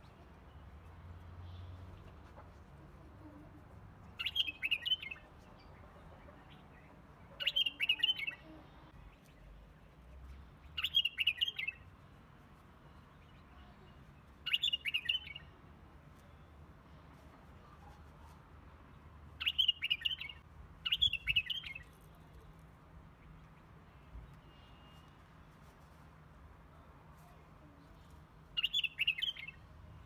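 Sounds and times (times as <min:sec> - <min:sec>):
songbird twittering: 0:04.2 - 0:05.2, 0:07.4 - 0:08.5, 0:10.8 - 0:11.8, 0:14.4 - 0:15.5, 0:19.4 - 0:21.9, 0:28.6 - 0:29.6.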